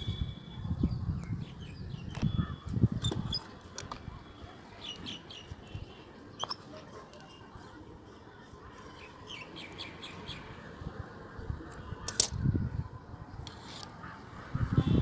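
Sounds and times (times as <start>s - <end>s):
birds chirping: 0.0s - 7.8s.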